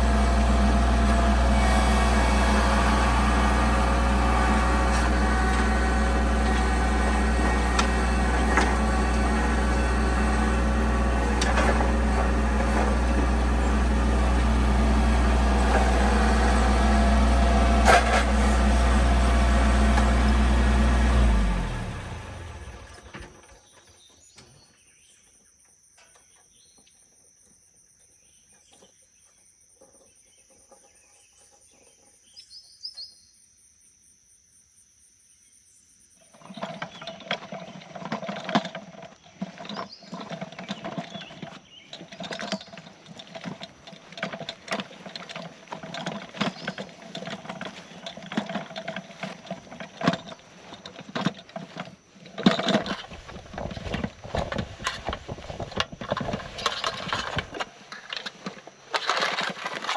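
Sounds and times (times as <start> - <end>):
handling noise: 0.0 - 23.4, 36.5 - 59.9
engine running: 0.0 - 23.7, 36.6 - 59.9
insects droning: 0.0 - 59.9
bird chirping: 23.5 - 33.5.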